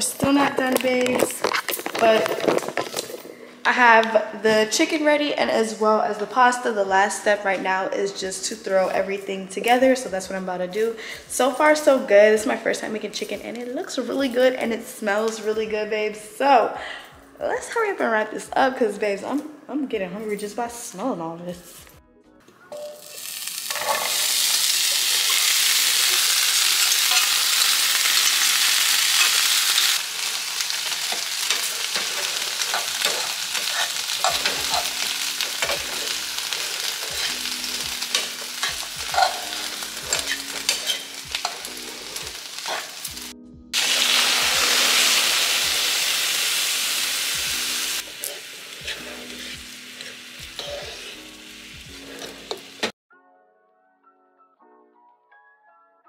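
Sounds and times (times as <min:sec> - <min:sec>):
spoon stirring and scraping: 0:00.6 - 0:03.4, 0:22.8 - 0:28.4, 0:30.6 - 0:43.1, 0:47.5 - 0:52.9
vegetables sizzling in a frying pan: 0:22.8 - 0:52.9.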